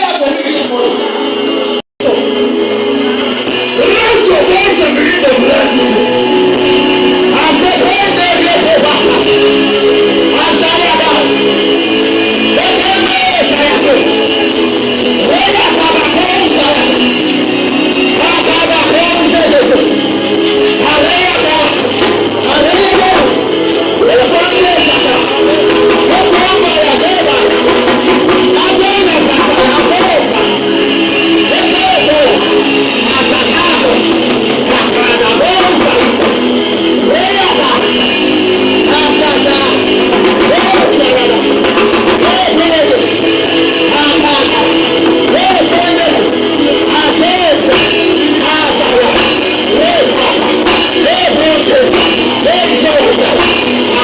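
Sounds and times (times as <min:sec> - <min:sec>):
live worship music with guitar: 0:00.0 - 0:54.0
cymbal crashes: 0:02.2 - 0:54.0.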